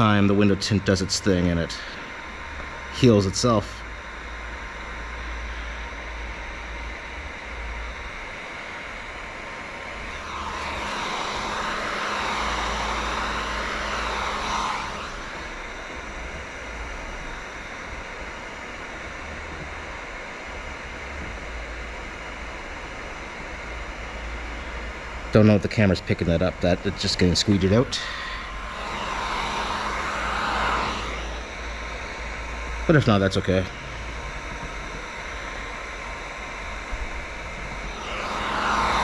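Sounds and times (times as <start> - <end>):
steady background hum: 0.0 - 39.0
heat gun blowing: 9.7 - 17.7, 27.5 - 32.8, 33.7 - 39.0.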